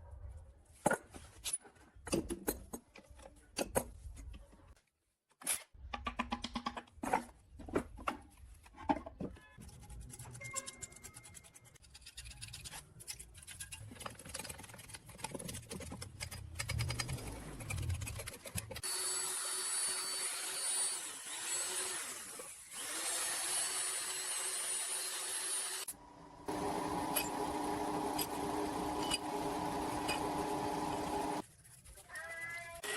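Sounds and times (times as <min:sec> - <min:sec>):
electric power tool whining: 0:18.8 - 0:31.4.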